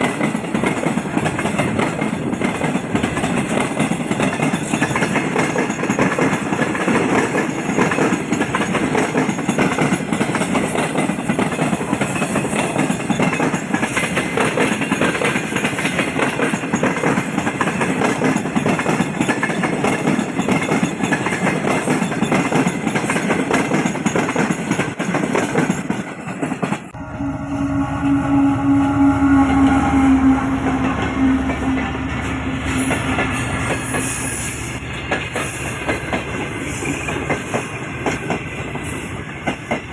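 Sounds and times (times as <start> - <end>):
train rumbling and clattering: 0.0 - 39.9
train horn long note: 27.0 - 33.6.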